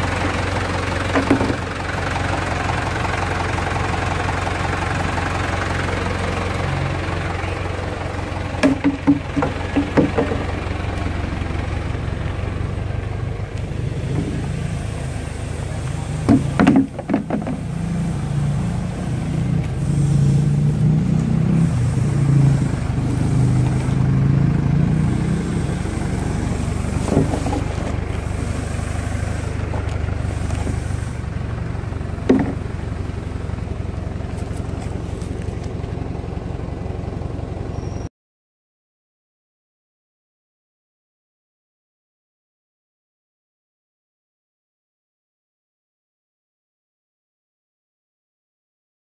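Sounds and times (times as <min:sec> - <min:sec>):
engine running steadily: 0:00.0 - 0:38.1
sharp knocks: 0:01.1 - 0:01.7, 0:08.6 - 0:10.6, 0:16.3 - 0:17.7, 0:32.3 - 0:32.6.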